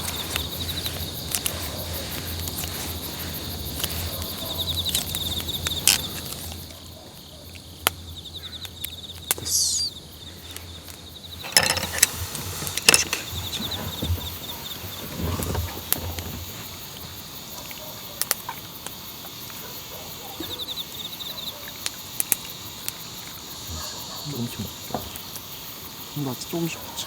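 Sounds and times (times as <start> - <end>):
insects trilling: 0.0 - 27.0
sharp clicks and knocks: 11.4 - 14.4.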